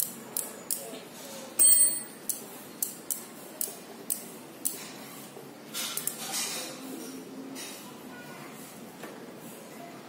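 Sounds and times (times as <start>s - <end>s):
sharp metallic clink: 1.6s - 2.2s.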